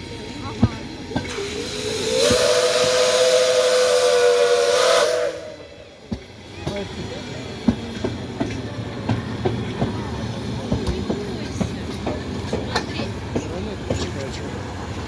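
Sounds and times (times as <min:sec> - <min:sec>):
steam hissing: 0:00.0 - 0:15.0
steam locomotive whistle: 0:01.3 - 0:06.0.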